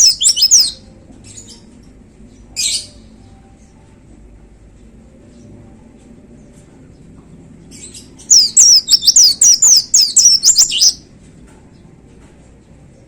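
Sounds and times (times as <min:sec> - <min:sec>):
bird singing falling notes: 0:00.0 - 0:00.8, 0:08.3 - 0:11.0.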